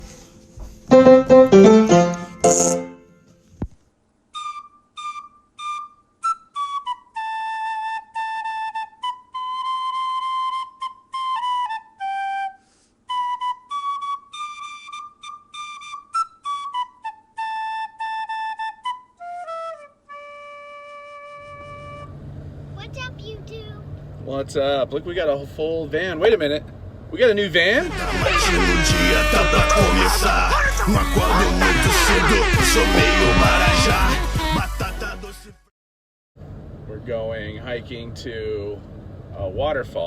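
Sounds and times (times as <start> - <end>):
solo flute-like melody: 4.3 - 22.2, 27.9 - 34.6.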